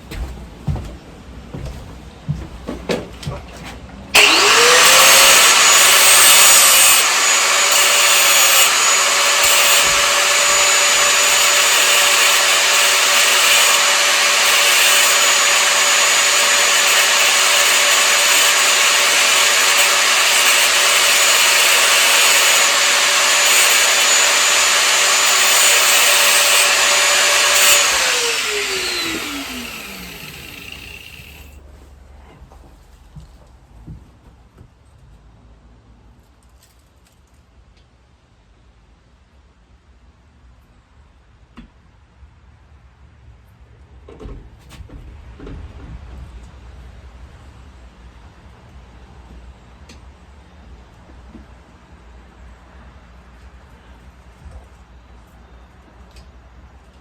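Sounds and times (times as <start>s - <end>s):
power tool motor whine: 4.2s - 31.6s.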